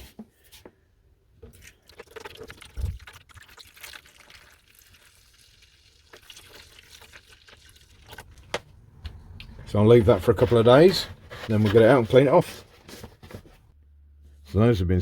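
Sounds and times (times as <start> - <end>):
liquid pouring and trickling: 1.4 - 8.5.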